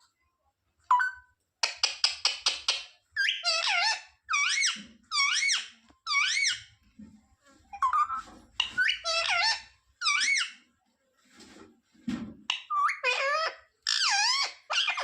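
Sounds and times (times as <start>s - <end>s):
parrot squeaky calls: 0.9s - 6.7s, 7.7s - 10.7s, 12.5s - 15.0s
parrot squawking: 2.6s - 6.7s, 7.8s - 10.6s, 12.5s - 15.0s.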